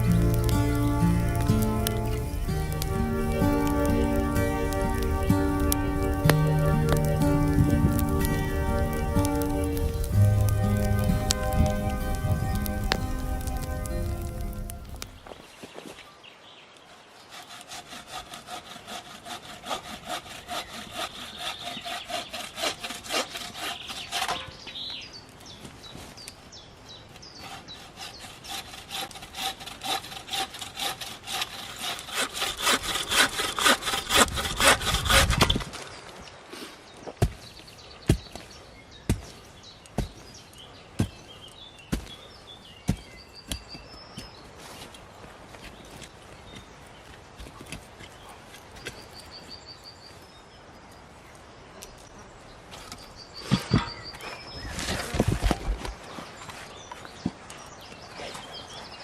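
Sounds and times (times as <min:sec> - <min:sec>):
saw cutting through log: 0:00.0 - 0:15.2, 0:17.1 - 0:24.8, 0:27.4 - 0:35.8.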